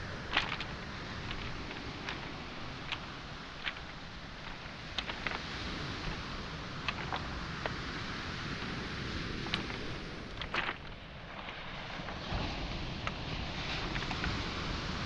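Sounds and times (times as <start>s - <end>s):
footsteps on pebbles: 0.0s - 12.3s, 13.8s - 14.4s
waves on a pebble shore: 0.0s - 15.0s.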